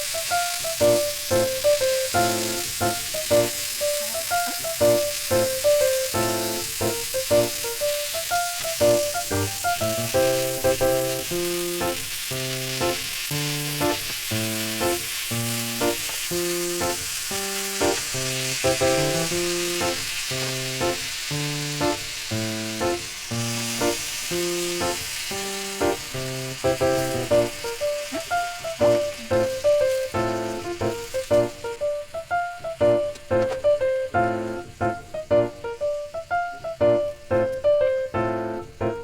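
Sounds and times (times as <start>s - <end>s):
plucked background music: 0.0s - 12.0s, 13.6s - 21.0s
food sizzling in a pan: 0.0s - 39.0s.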